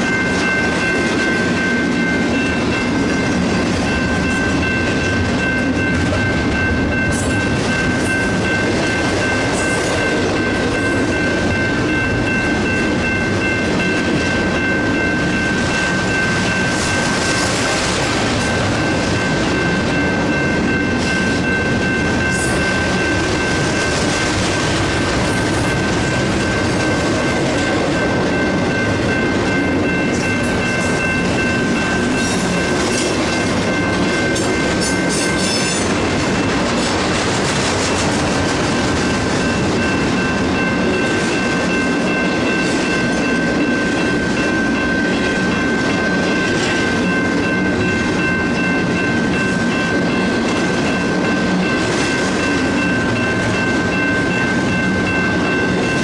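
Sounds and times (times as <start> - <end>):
steady high ringing tone: 0.0 - 36.8, 38.8 - 56.0
train wheels clattering over rails: 0.0 - 56.0.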